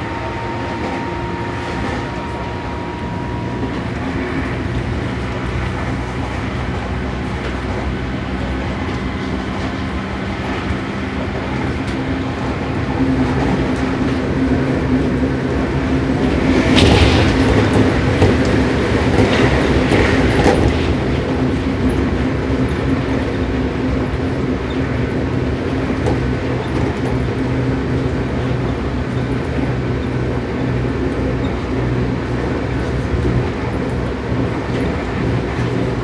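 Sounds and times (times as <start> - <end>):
train motor and gear hum: 0.0 - 36.0
wheel clatter over track: 0.0 - 36.0
wheel-on-rail noise: 0.0 - 36.0.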